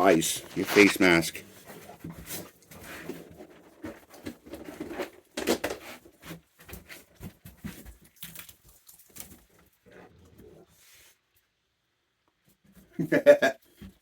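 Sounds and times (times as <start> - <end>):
raccoons crunching food: 7.2 - 10.6.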